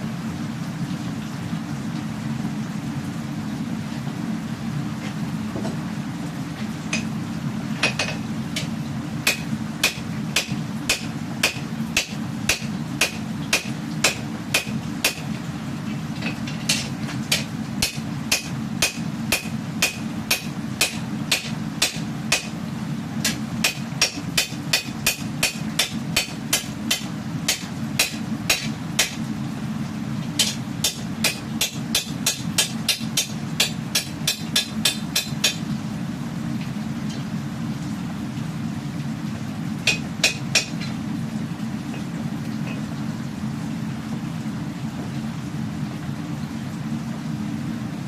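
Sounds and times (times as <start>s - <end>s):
hammer striking steel: 9.3s - 15.2s, 16.7s - 22.5s, 23.2s - 29.2s, 30.4s - 35.6s, 39.9s - 40.9s.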